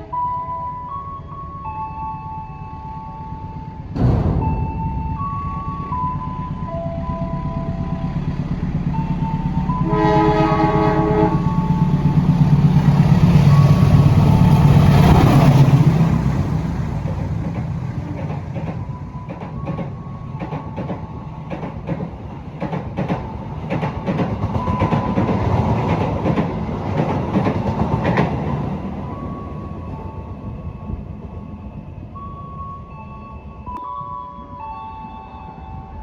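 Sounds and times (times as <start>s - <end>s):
low train rumble: 0.0s - 36.0s
train horn blast: 9.6s - 12.2s.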